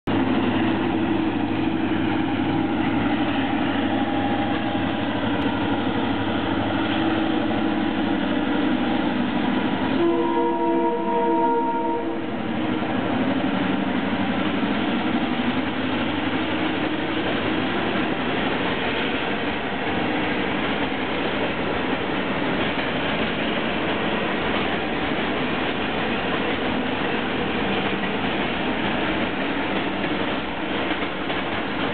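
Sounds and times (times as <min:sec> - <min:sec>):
locomotive horn: 0:09.9 - 0:12.3
train wheels clattering on rail: 0:12.3 - 0:31.9.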